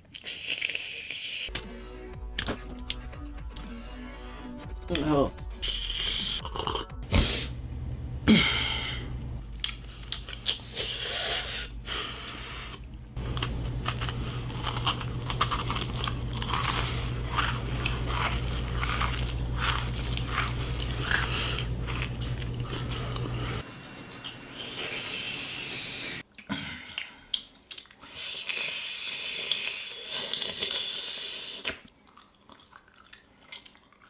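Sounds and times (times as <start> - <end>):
steady low hum: 1.5 - 26.2
close crunching and crackling: 13.2 - 23.6.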